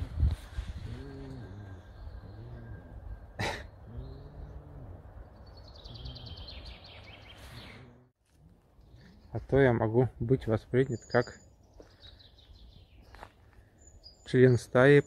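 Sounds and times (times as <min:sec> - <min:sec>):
bird cooing calls: 0:00.6 - 0:07.9
descending bird trill: 0:00.6 - 0:08.0.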